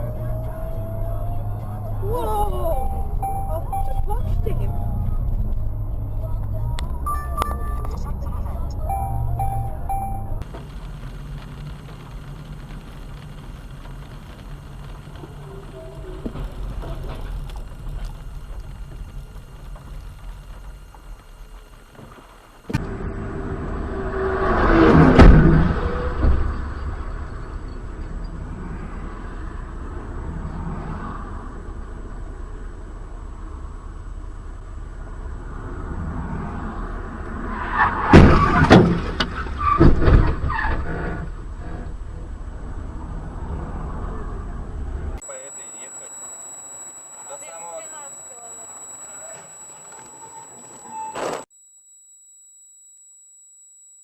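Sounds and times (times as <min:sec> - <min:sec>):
vehicle rumbling on road: 0:00.0 - 0:45.2
brief squealing: 0:49.5 - 0:51.5.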